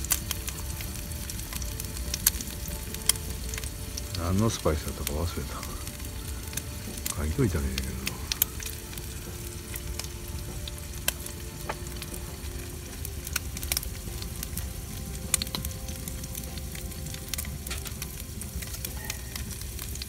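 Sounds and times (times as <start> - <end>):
food sizzling in a pan: 0.0 - 20.0
oil popping and crackling: 0.0 - 20.0.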